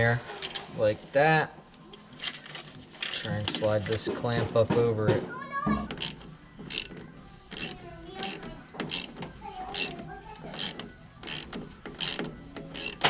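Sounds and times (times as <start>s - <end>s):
rubbery squeaks: 5.8s - 13.0s
hose clamp ratcheting: 5.9s - 13.0s.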